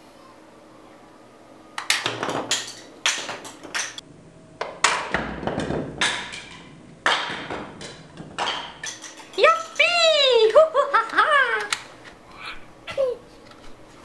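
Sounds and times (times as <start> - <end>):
taps and knocks of hard objects: 4.6 - 9.1.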